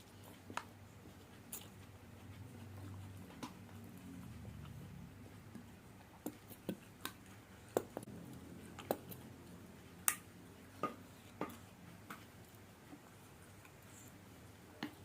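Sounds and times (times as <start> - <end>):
chewing crunches and mouth noises: 0.0 - 9.6.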